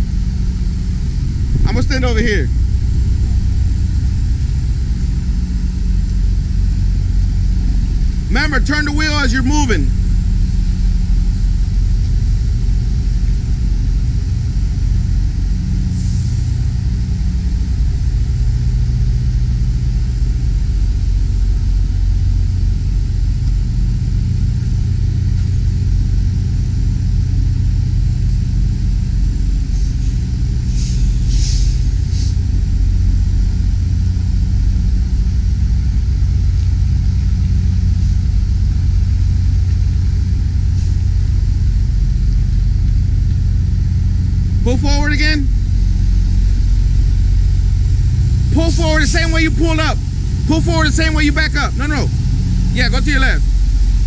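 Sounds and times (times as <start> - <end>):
diesel engine idling: 0.0 - 54.0
short high hisses: 29.8 - 32.4.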